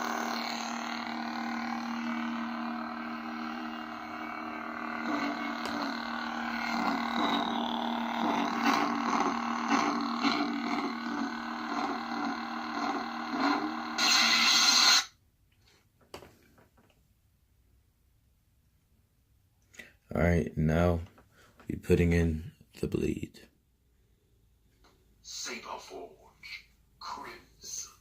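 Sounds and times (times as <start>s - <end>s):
harsh lightsaber burst: 0.0s - 12.6s, 13.2s - 15.1s
lightsaber electric hum: 0.0s - 15.1s.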